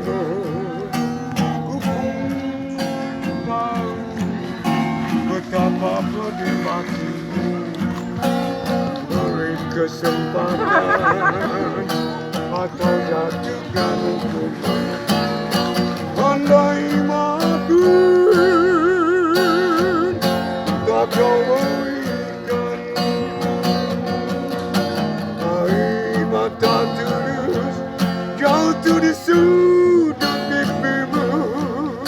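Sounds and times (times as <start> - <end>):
acoustic guitar strumming: 0.0 - 32.0
person singing with vibrato: 9.1 - 14.9.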